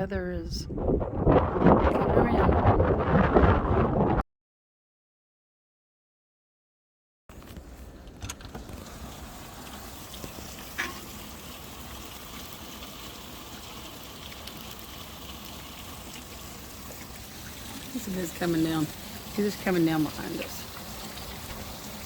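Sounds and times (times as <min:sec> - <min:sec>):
rain falling: 0:07.3 - 0:22.0.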